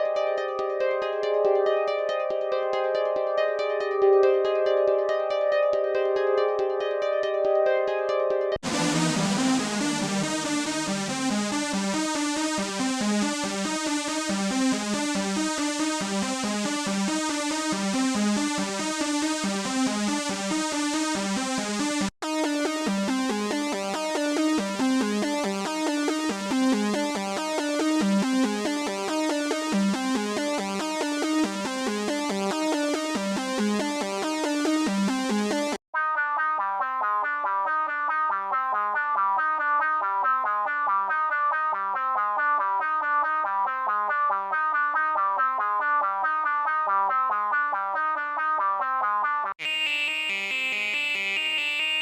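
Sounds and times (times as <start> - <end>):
repeating synth note pattern: 8.6 - 15.9, 17.0 - 35.8.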